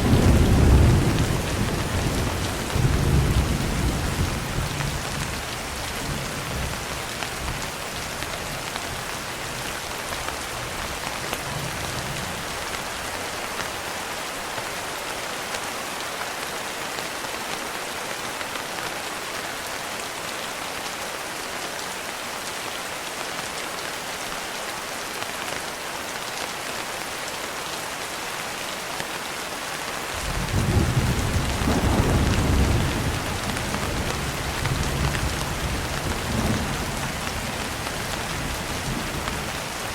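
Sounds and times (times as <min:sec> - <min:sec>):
thunder rumbling: 0:00.0 - 0:05.3, 0:30.2 - 0:39.3
steady rain falling: 0:00.0 - 0:39.9.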